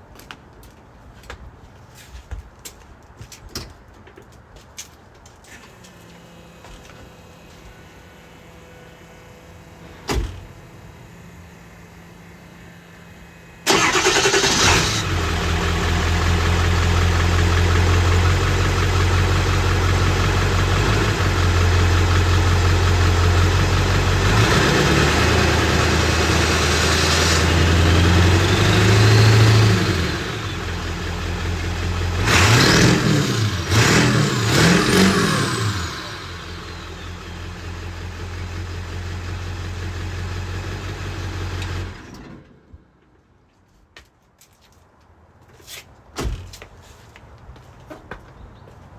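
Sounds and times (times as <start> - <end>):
diesel engine deep rumble: 13.3 - 42.5.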